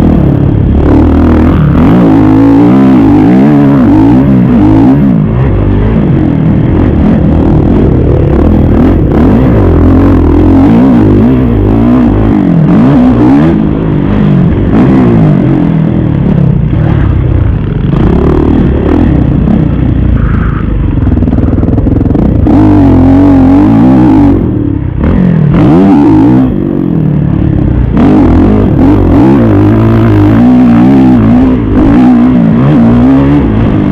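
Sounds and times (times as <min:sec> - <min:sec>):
motocross bike engine revving: 0:00.0 - 0:33.9.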